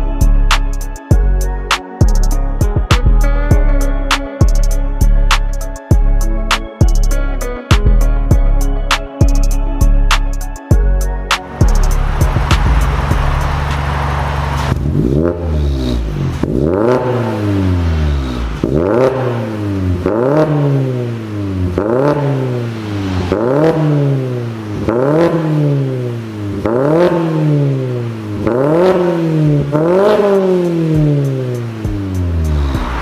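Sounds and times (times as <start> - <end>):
car engine revving: 11.3 - 33.0.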